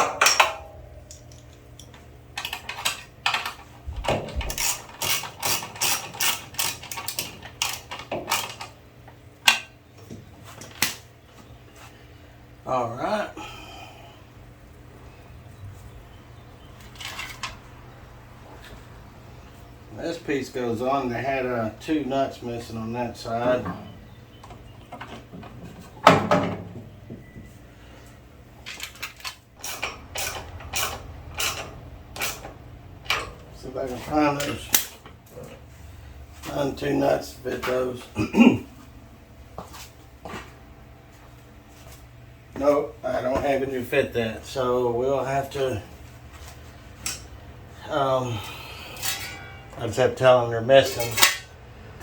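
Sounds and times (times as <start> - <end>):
metal parts clanking: 0.0 - 8.7, 16.8 - 17.6, 28.6 - 33.5, 48.7 - 51.6
ratchet wrench ratcheting: 4.4 - 8.6, 29.0 - 32.4.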